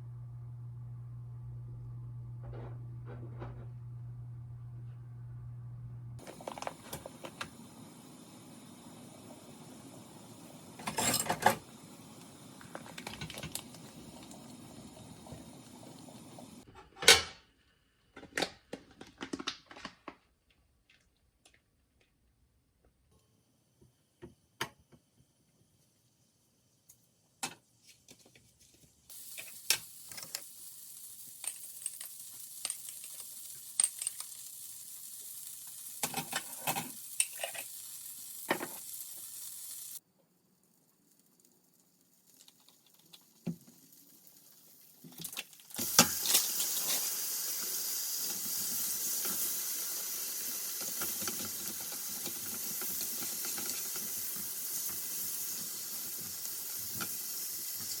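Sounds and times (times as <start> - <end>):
food sizzling in a pan: 6.2 - 16.7, 29.1 - 40.0, 40.6 - 58.0.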